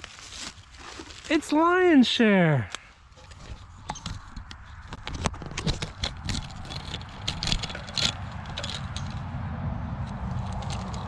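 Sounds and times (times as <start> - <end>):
footsteps crunching on forest floor: 0.0 - 3.7
low rumble: 6.1 - 11.0.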